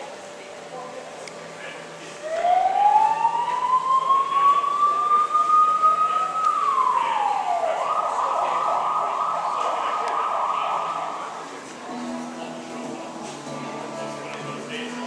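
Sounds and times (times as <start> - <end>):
police siren wailing and yelping: 2.2 - 11.5.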